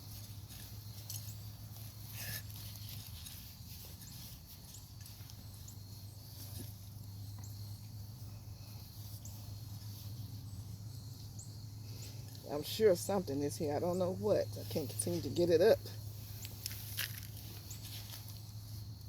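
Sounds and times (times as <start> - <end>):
hands digging through soil: 0.0 - 10.8, 14.7 - 18.9
steady low hum: 0.0 - 19.0.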